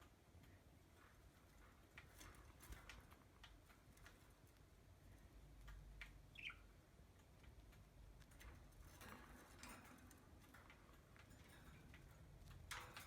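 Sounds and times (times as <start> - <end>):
bird chirp: 6.3 - 6.8.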